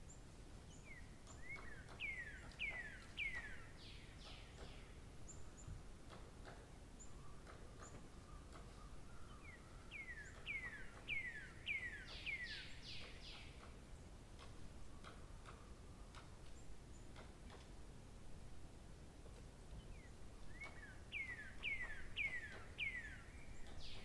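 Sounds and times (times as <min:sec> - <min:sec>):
faint clicks: 0:06.0 - 0:06.7, 0:07.4 - 0:08.8, 0:13.0 - 0:17.8.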